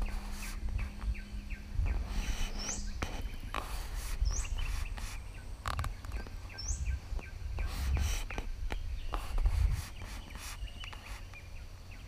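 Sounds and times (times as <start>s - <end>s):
low rumble: 0.0s - 3.5s
short bird chirps: 7.6s - 12.0s.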